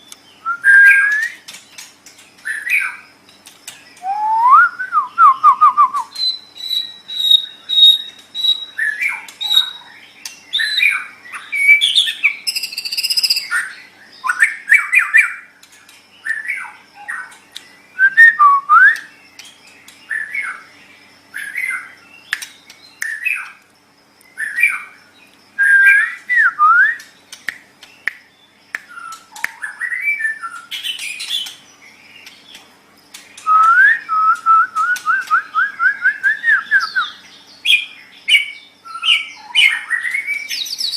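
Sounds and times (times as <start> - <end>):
bird singing whistled phrases: 0.4 - 1.5, 4.0 - 9.8, 10.5 - 15.5, 17.9 - 19.3, 25.6 - 27.3, 28.8 - 31.5, 33.4 - 40.9.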